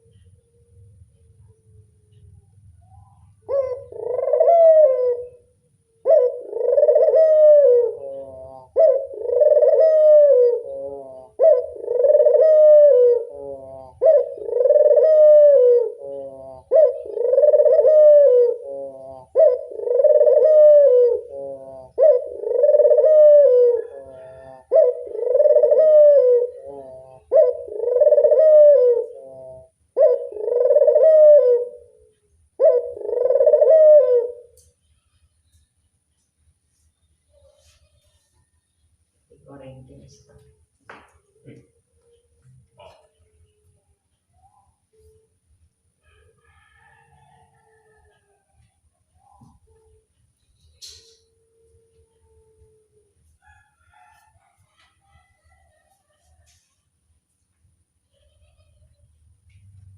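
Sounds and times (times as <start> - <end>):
dove cooing: 0.0 - 35.1, 41.3 - 50.1.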